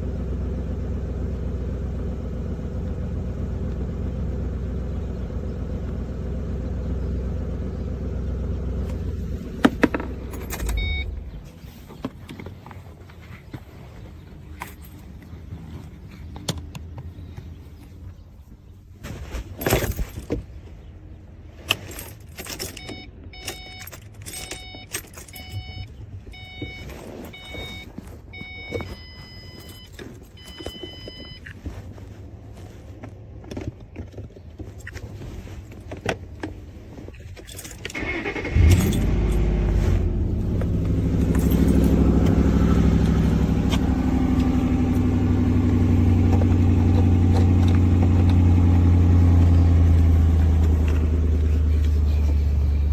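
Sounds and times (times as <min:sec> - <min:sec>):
car engine starting and idling: 0:00.0 - 0:18.8, 0:19.8 - 0:52.9
keys jangling: 0:09.9 - 0:11.1, 0:21.7 - 0:25.8, 0:37.2 - 0:38.0, 0:38.6 - 0:39.6, 0:40.5 - 0:43.5
electronic warning chime beeping: 0:10.7 - 0:11.2, 0:24.5 - 0:31.4.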